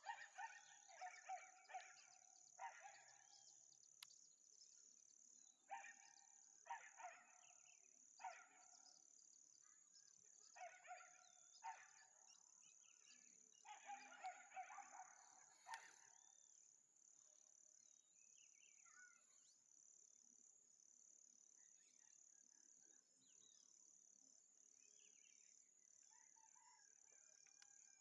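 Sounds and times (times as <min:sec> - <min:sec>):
dog barking: 0:00.0 - 0:03.2, 0:05.7 - 0:07.5, 0:08.2 - 0:08.7, 0:10.6 - 0:12.2, 0:13.7 - 0:16.1.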